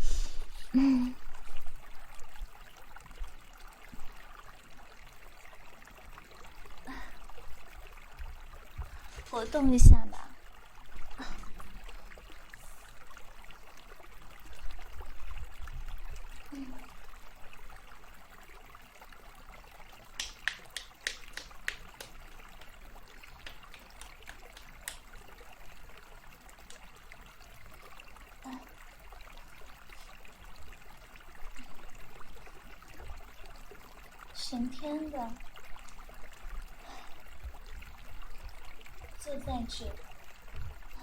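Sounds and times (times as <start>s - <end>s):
trickle of running water: 0.0s - 41.0s
sharp clicks: 20.2s - 22.7s.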